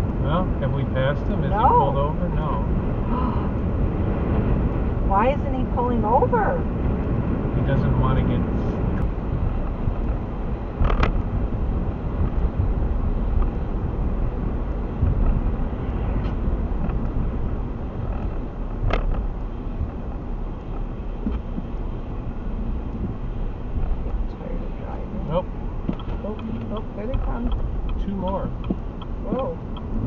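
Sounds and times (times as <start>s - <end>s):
road and engine noise in car: 0.0s - 30.0s.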